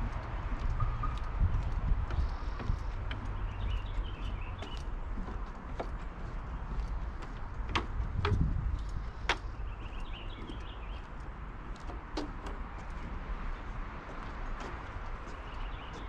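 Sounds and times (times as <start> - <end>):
steady low rumble: 0.0 - 11.7
footsteps on trail: 0.0 - 16.0.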